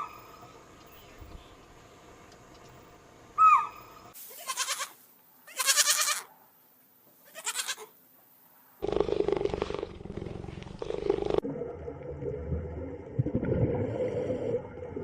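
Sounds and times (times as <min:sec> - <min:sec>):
rough continuous animal sound: 0:00.0 - 0:11.4
livestock bleating: 0:04.3 - 0:06.3, 0:07.2 - 0:07.9.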